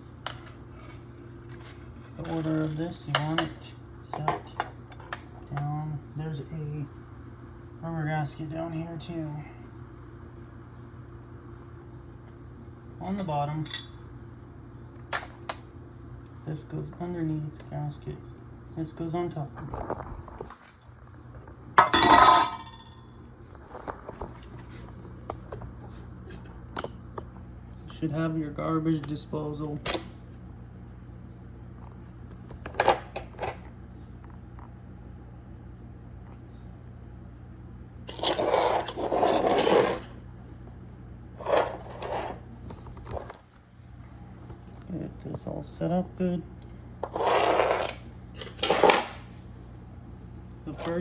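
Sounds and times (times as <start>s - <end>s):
metal parts clanging: 2.2s - 3.4s, 21.8s - 23.0s, 47.0s - 49.1s
metal parts scraping: 38.1s - 40.1s, 41.4s - 42.4s, 47.0s - 49.2s.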